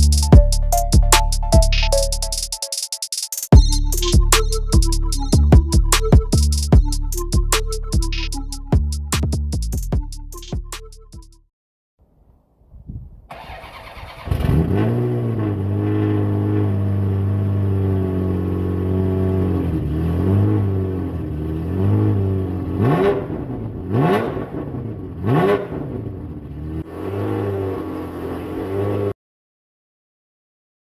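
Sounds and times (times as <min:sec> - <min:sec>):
car engine starting and idling: 0:13.3 - 0:29.1
engine throttle blips: 0:13.3 - 0:29.1.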